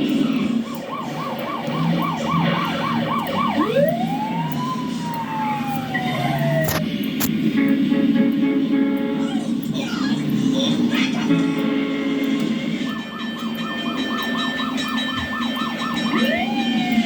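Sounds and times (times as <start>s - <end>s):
police siren yelp and wail: 0.0s - 6.9s, 9.0s - 17.0s
sharp clicks: 0.0s - 7.4s.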